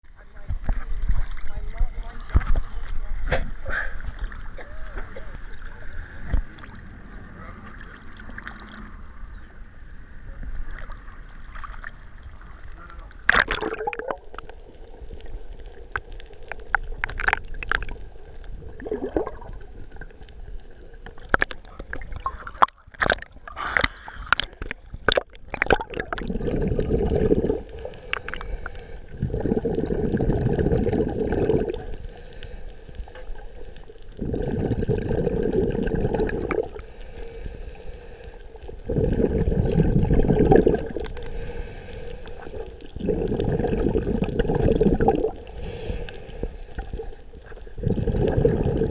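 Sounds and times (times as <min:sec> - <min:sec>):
water splashes: 0:00.3 - 0:48.9
exhaled bubbles underwater: 0:10.3 - 0:48.9.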